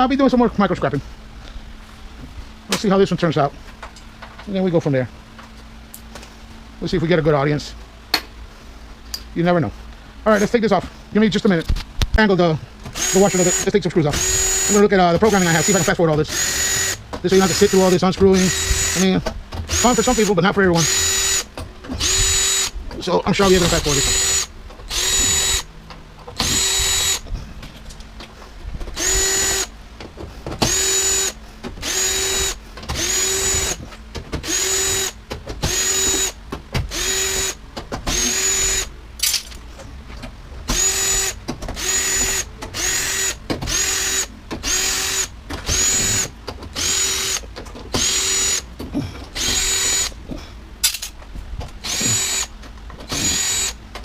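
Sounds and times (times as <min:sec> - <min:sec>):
power drill spinning: 0:12.9 - 0:25.7, 0:26.3 - 0:27.2, 0:28.9 - 0:29.7, 0:30.6 - 0:33.8, 0:34.4 - 0:38.9, 0:40.7 - 0:48.7, 0:49.3 - 0:50.2, 0:51.8 - 0:53.8.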